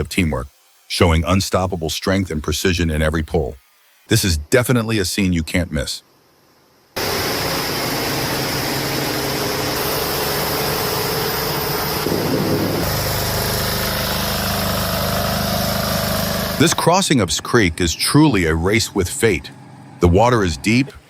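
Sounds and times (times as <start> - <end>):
heavy truck engine running: 7.0 - 20.8.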